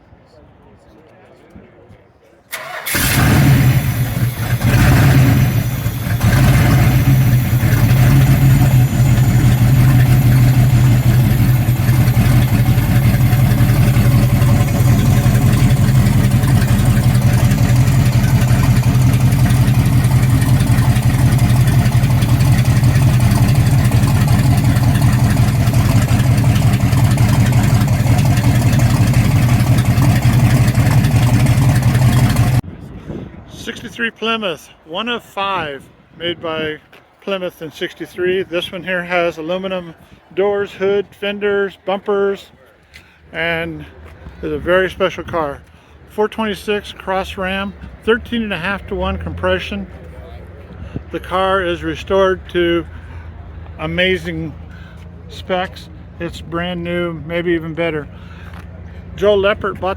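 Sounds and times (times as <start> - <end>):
car engine revving and idling: 2.9 - 32.6, 47.8 - 59.9.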